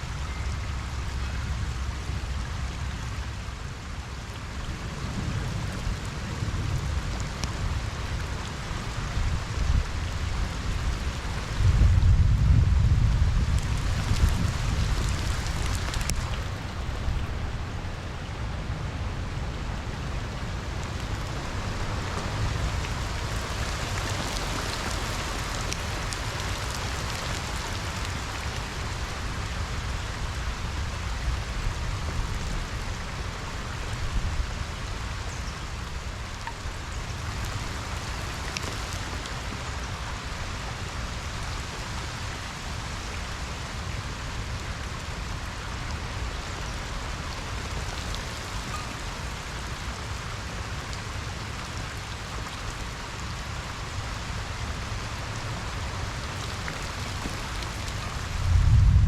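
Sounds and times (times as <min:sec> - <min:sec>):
rain falling on pond: 0:00.0 - 0:59.0
low rumble: 0:58.2 - 0:59.0.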